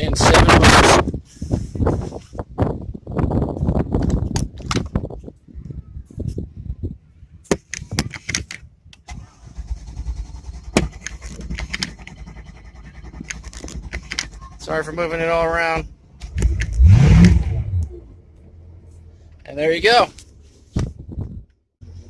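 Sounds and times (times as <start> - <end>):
boat engine starting and idling: 9.1 - 19.4.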